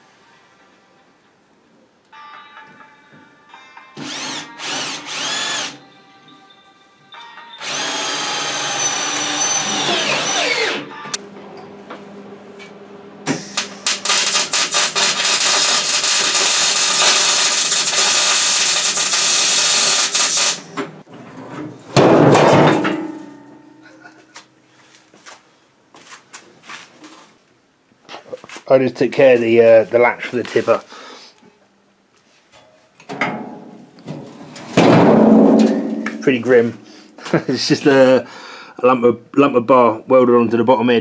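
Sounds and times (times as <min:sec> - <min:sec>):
power tool motor revving: 0:04.1 - 0:05.8, 0:07.6 - 0:10.8
harsh crackling on metal: 0:13.8 - 0:20.6.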